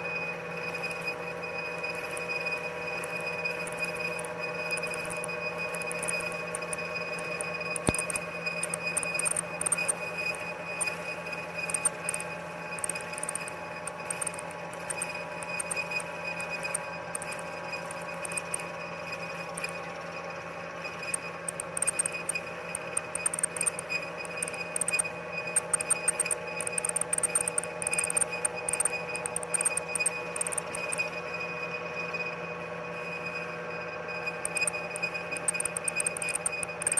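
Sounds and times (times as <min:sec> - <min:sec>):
machine tool humming and whining: 0:00.0 - 0:36.9
crackling ticks: 0:03.0 - 0:18.7, 0:21.0 - 0:31.2, 0:34.4 - 0:36.9.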